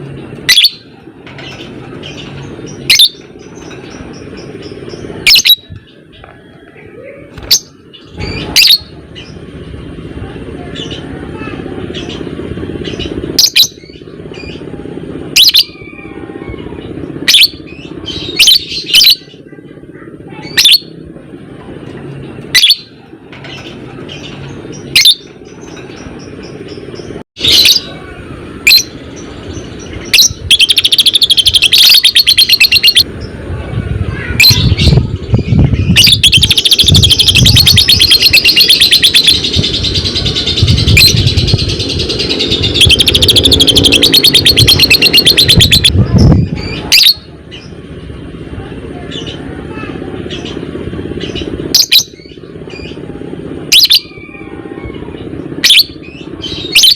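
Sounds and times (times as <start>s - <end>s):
rapid chattering trill: 0.4s - 5.8s, 28.6s - 33.5s, 34.2s - 47.6s, 49.2s - 54.2s.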